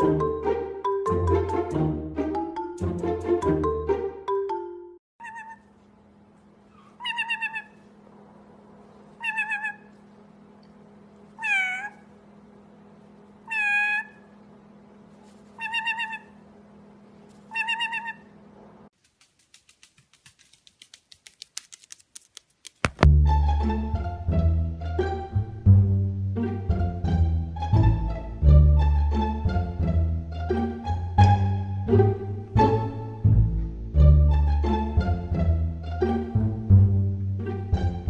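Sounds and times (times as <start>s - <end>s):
steady low hum: 5.7s - 21.3s
cat meowing: 9.2s - 9.9s, 11.4s - 12.1s, 13.5s - 14.2s, 17.5s - 18.3s
quick clicks: 19.0s - 23.1s.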